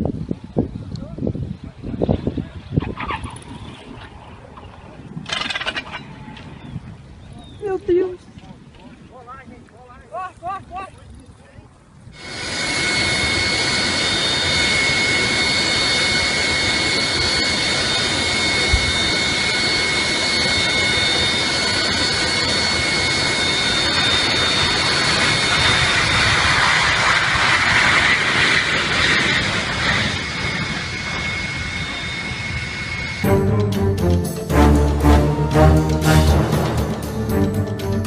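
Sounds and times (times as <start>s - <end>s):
jet engine whine and rush: 12.1s - 38.0s.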